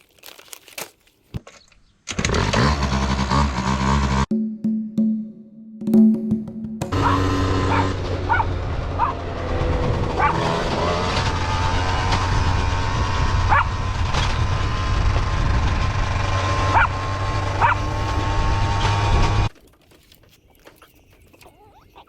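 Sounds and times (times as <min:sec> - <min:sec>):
small dogs yipping: 0:07.0 - 0:09.2, 0:10.2 - 0:10.6, 0:13.5 - 0:13.8, 0:16.7 - 0:17.0, 0:17.6 - 0:18.1.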